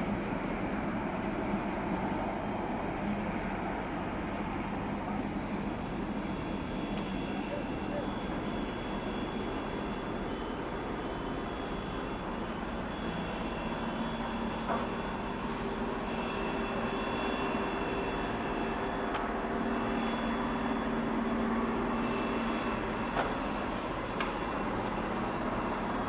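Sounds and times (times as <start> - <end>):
jet engines humming: 0.1 - 26.0
faint high whine: 5.6 - 26.0.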